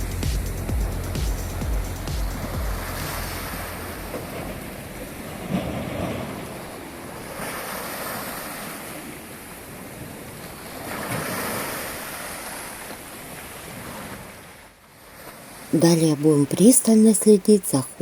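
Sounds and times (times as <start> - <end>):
surf washing onto shore: 2.2 - 14.6.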